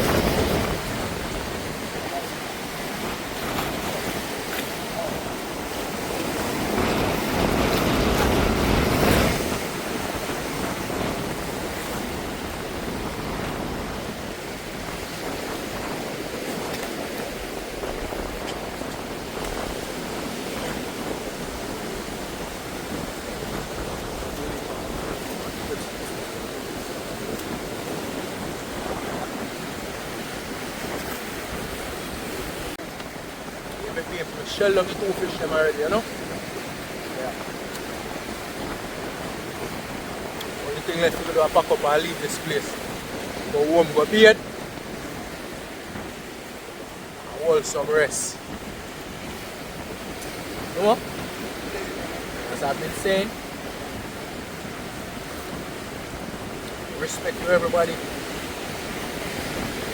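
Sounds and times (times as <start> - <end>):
sea surf washing in: 0.0 - 59.9.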